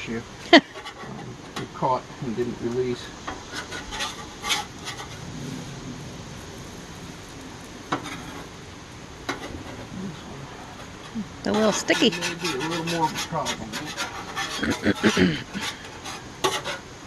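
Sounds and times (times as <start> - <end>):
spatula scraping frying pan: 0.6 - 1.8, 3.2 - 5.3, 7.9 - 8.6, 9.2 - 9.9, 10.5 - 17.0.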